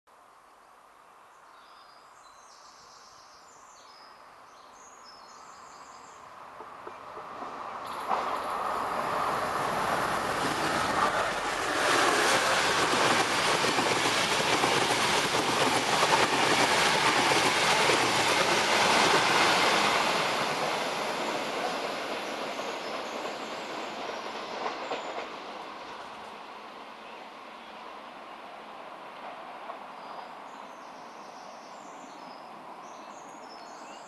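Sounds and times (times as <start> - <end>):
diesel train passing: 6.2 - 33.2.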